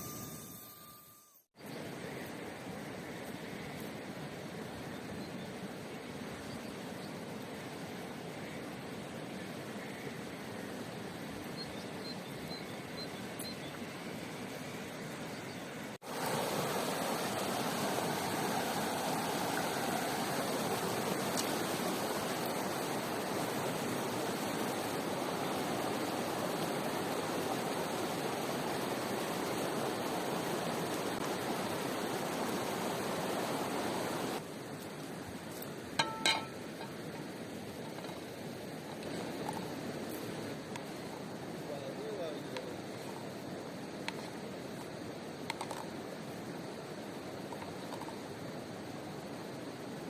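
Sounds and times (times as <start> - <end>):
rushing river water: 12.4 - 50.0.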